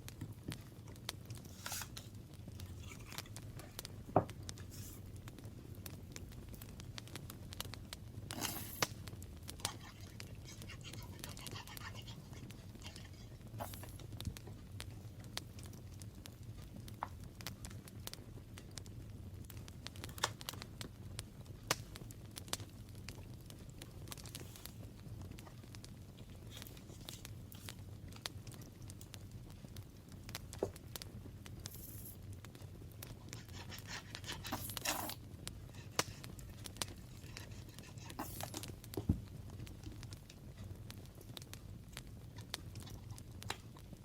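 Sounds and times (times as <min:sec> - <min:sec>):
paper and craft materials handled: 0:01.4 - 0:03.8, 0:33.2 - 0:39.2
paper rasping: 0:01.5 - 0:02.0, 0:33.3 - 0:35.2, 0:37.1 - 0:38.6.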